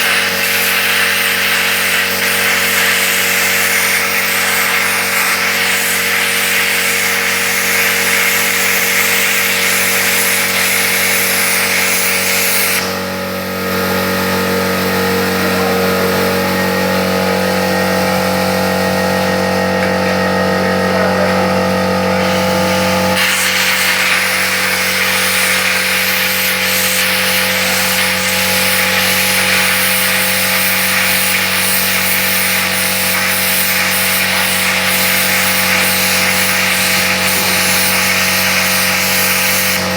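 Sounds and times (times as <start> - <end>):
plasma cutter hiss and buzz: 0.0 - 19.6, 22.0 - 39.9.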